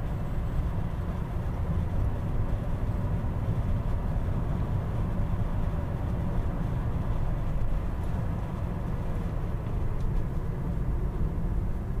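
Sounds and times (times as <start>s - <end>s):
car road rumble inside cabin: 0.0s - 12.0s.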